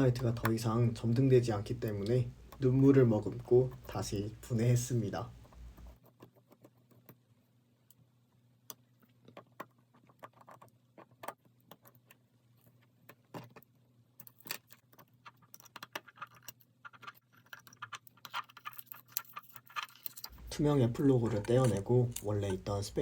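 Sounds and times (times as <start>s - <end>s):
low steady hum: 20.1s - 23.0s.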